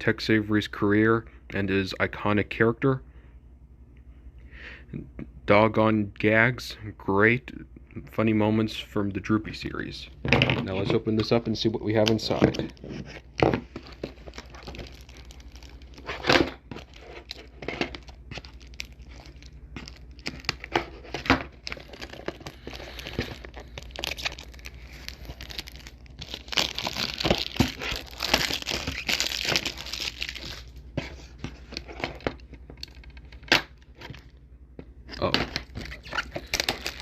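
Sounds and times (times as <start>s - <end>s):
plastic wrap crinkling: 10.7s - 34.2s, 35.2s - 37.0s
plastic wrap tearing: 11.9s - 30.8s, 35.2s - 37.0s
clicks and crackles: 13.4s - 30.7s, 35.2s - 37.0s.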